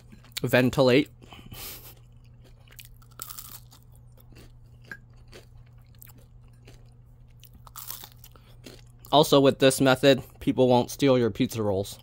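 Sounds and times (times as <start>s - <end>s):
person chewing crunchy food: 0.0s - 9.5s.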